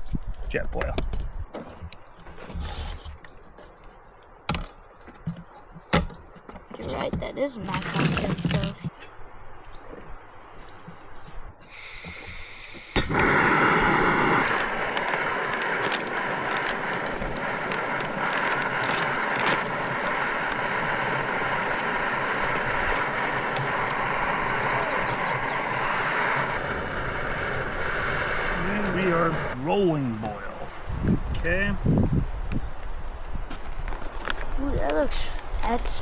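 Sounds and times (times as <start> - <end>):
gas stove burner hissing: 11.6 - 29.6
water boiling in a pot: 11.6 - 29.6.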